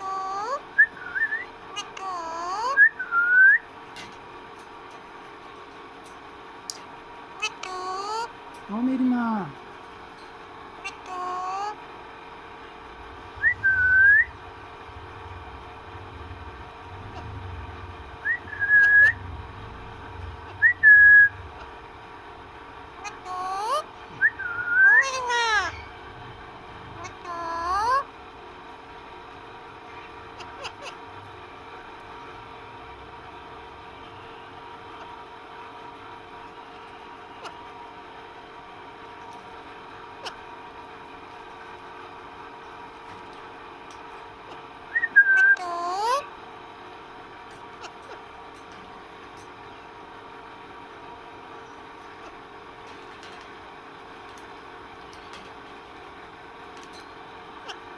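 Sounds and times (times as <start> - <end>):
parrot calls with voice-like tone: 0.0 - 0.7, 1.7 - 3.0, 7.4 - 9.6, 10.8 - 11.9, 23.0 - 24.0, 24.8 - 26.0, 27.0 - 28.2, 29.9 - 31.0, 45.4 - 46.3
low background hum: 0.0 - 57.9
parrot whistling: 13.4 - 14.4, 18.2 - 19.2, 20.6 - 21.4, 23.0 - 25.9, 44.9 - 46.2.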